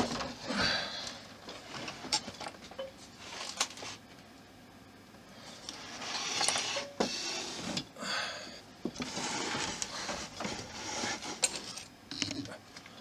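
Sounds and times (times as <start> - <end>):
plastic parts rustling and scraping: 1.5 - 4.0, 5.6 - 7.9, 8.8 - 12.5.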